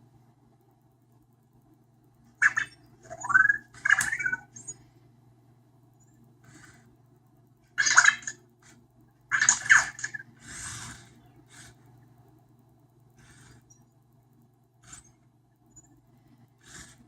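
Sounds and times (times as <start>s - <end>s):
soft noisy sound: 0.0s - 17.0s
robot electronic chirps: 2.4s - 4.8s.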